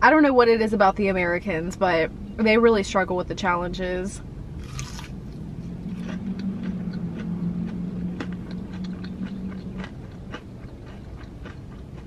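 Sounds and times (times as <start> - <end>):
low steady hum: 0.0 - 12.0
person chewing crunchy food: 4.5 - 12.0.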